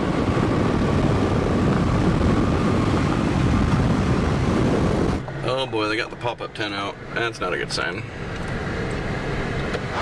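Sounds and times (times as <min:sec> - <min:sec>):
wind rushing past car: 0:00.0 - 0:05.6, 0:08.0 - 0:10.0.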